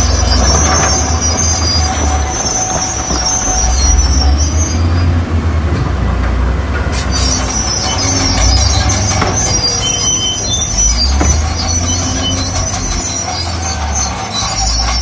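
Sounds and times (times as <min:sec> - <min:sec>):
metallic squealing and screeching: 0:00.0 - 0:05.4, 0:06.8 - 0:15.0
diesel engine rumble: 0:00.0 - 0:15.0.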